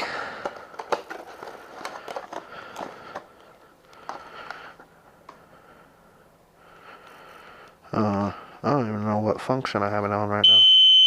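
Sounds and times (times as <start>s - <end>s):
plastic handling noise: 0.0s - 5.5s.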